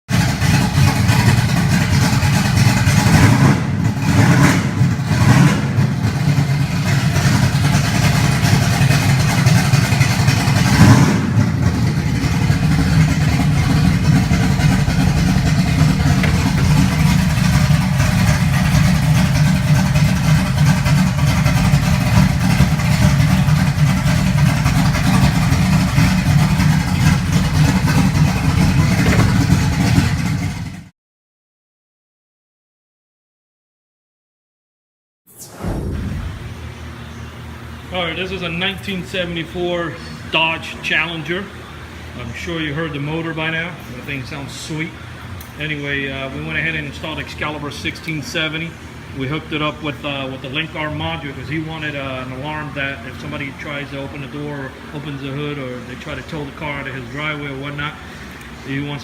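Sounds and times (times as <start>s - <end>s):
car engine revving and idling: 0.1s - 30.9s.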